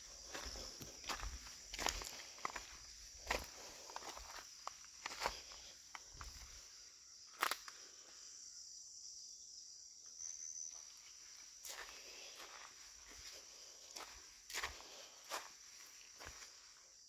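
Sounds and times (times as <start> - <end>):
high-pitched insect chorus: 0.0 - 17.0
footsteps or twig snaps: 7.3 - 7.8.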